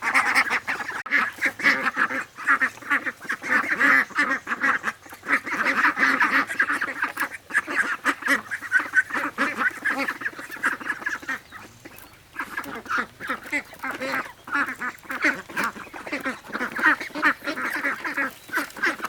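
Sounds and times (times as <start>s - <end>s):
ducks quacking: 0.0s - 19.0s.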